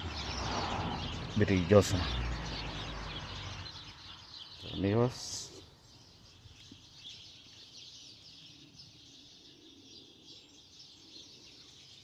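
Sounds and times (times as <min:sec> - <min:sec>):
small birds chirping and twittering: 0:00.0 - 0:12.0.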